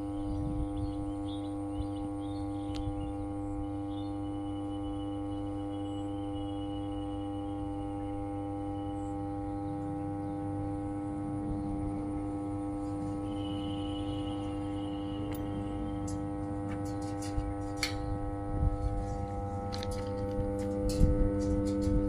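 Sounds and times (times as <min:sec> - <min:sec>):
transformer humming: 0:00.0 - 0:22.0.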